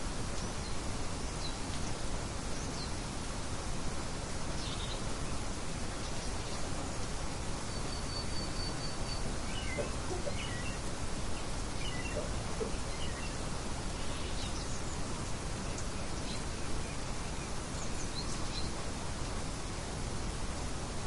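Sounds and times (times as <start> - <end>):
steady outdoor hiss: 0.0 - 21.0
birds chirping: 6.0 - 18.8.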